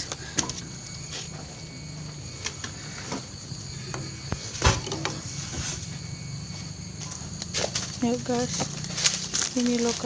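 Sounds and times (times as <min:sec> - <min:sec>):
high-pitched insect chorus: 0:00.0 - 0:10.0
knocks and rustles: 0:02.4 - 0:05.9
thump: 0:04.6 - 0:05.2.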